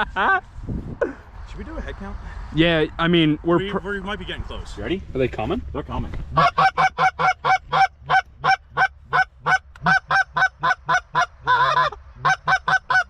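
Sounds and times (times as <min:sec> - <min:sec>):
goose honking: 0:06.3 - 0:13.0.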